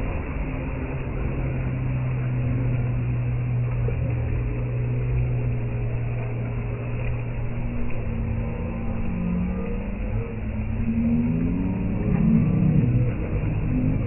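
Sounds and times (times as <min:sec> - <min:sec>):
low engine hum: 0:00.0 - 0:14.0
noisy rush: 0:00.0 - 0:14.0.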